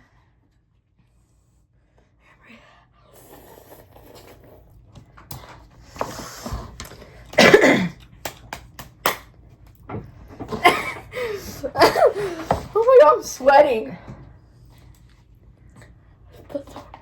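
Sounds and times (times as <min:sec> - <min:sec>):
person coughing: 0:07.3 - 0:08.0.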